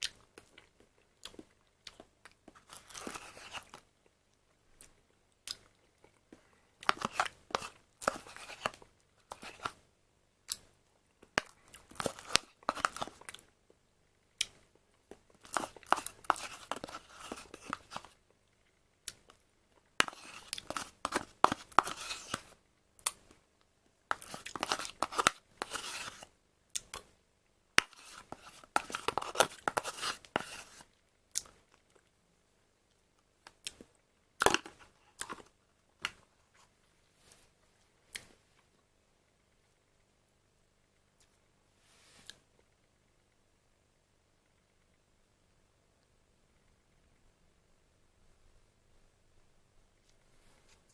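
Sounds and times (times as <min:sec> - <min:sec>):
plastic cup scraping and rustling: 0:02.6 - 0:03.8, 0:06.8 - 0:09.8, 0:12.0 - 0:13.2, 0:15.5 - 0:18.2, 0:20.0 - 0:22.6, 0:24.1 - 0:26.3, 0:27.9 - 0:30.8.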